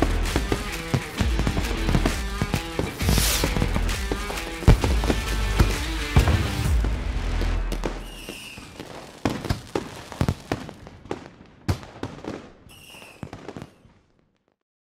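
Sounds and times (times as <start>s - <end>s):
fireworks bangs and crackle: 0.0s - 14.6s
falling firework whistles: 2.8s - 3.7s, 7.8s - 10.3s, 12.6s - 14.0s.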